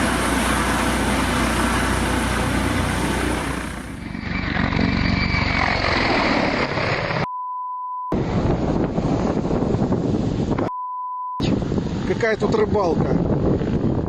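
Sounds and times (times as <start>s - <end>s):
helicopter rotor and engine: 0.0s - 7.3s, 11.5s - 14.0s
censor bleep: 7.2s - 8.2s, 10.6s - 11.4s.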